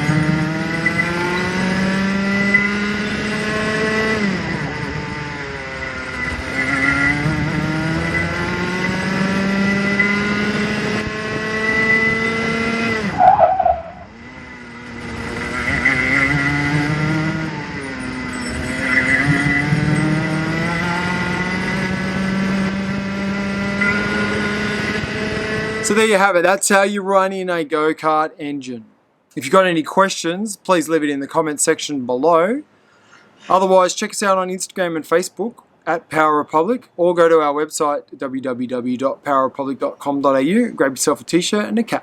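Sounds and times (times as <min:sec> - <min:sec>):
go-kart engine revving: 0:00.0 - 0:26.0
brief squeal: 0:13.1 - 0:14.1.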